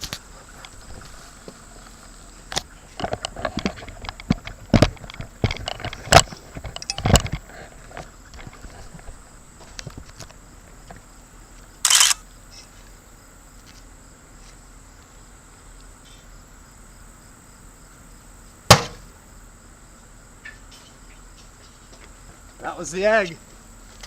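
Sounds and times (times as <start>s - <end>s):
egg exploding with a pop: 18.7s - 19.0s.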